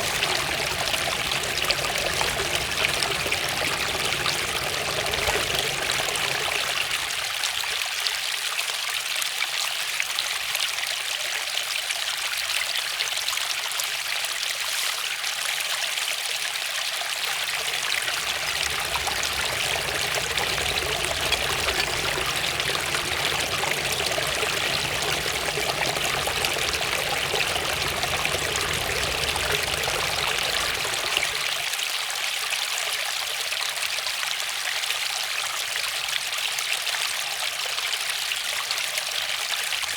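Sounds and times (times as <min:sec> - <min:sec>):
waterfall rushing: 0:00.0 - 0:07.4, 0:17.4 - 0:31.7.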